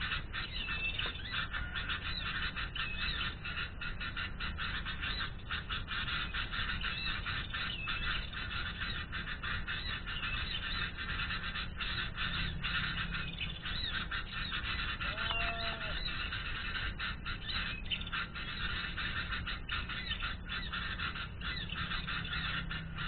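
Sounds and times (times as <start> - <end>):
small birds chirping: 0.0 - 23.0
steady low rumble: 0.0 - 23.0
short low bird call: 14.6 - 16.4.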